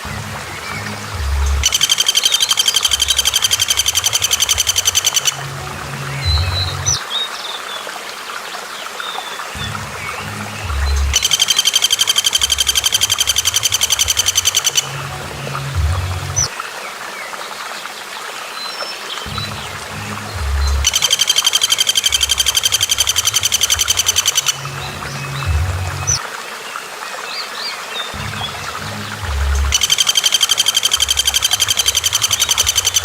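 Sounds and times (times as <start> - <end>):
bird rapid high trill: 1.6 - 5.4, 11.1 - 14.9, 20.8 - 24.7, 29.7 - 33.0
short bird chirps: 1.6 - 5.4.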